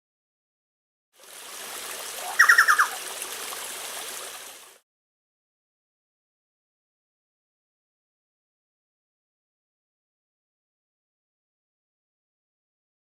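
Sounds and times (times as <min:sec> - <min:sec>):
river water rushing: 0:01.2 - 0:04.8
bird calling sharp notes: 0:02.2 - 0:03.0.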